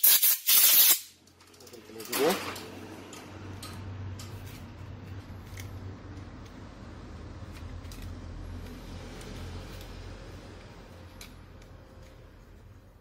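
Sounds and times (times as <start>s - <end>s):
small parts clicking and rustling: 0.2s - 6.6s, 7.4s - 10.0s.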